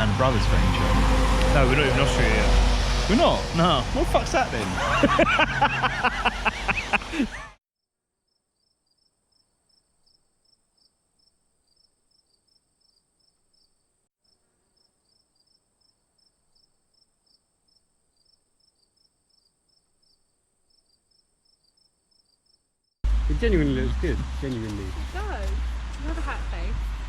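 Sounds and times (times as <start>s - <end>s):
thin high insect buzz: 8.3s - 22.7s
insects chirping: 8.3s - 23.0s.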